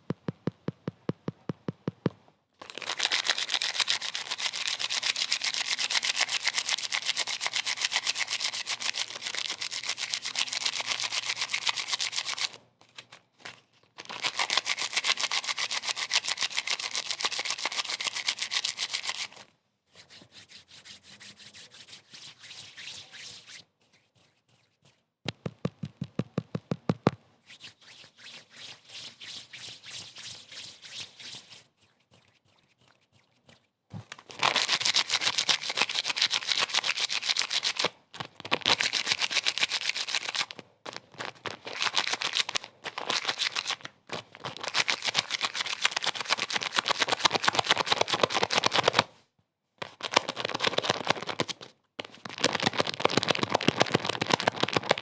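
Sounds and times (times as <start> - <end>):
deeper taps: 0.0 - 2.2
fast rubbing strokes: 2.8 - 12.6, 14.2 - 25.0, 27.4 - 37.9.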